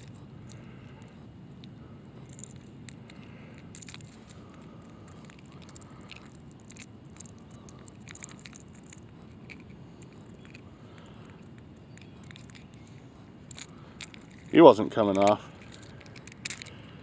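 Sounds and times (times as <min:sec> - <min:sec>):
low steady background noise: 0:00.0 - 0:17.0
fishing lure hooks clinking: 0:11.3 - 0:16.9.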